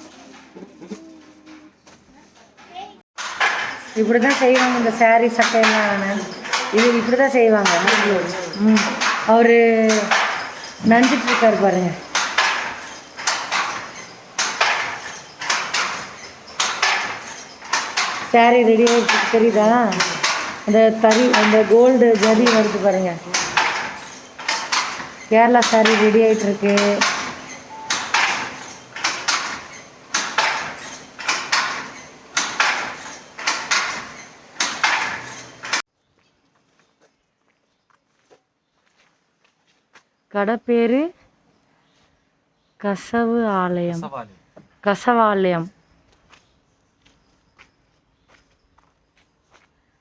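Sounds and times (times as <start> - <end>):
handloom wooden clacks: 2.5 - 35.9.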